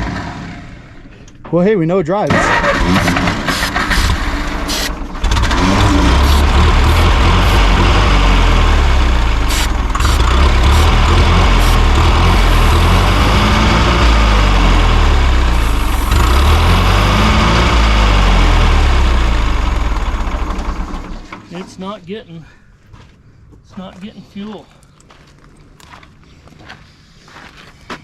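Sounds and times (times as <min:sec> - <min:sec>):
tractor engine running unevenly: 0:02.3 - 0:21.5.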